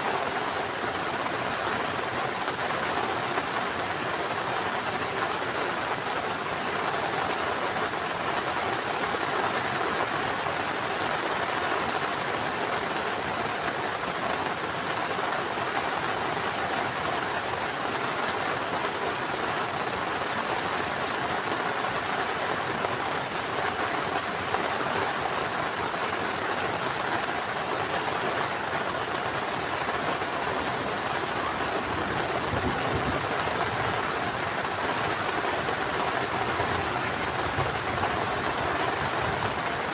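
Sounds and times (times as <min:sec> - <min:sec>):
heavy rain pattering: 0:00.1 - 0:39.9.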